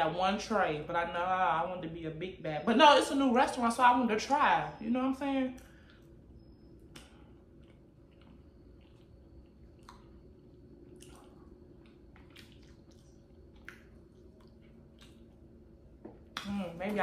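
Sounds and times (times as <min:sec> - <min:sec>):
low steady hum: 0:00.0 - 0:17.0
faint chewing with mouth clicks: 0:05.5 - 0:16.5.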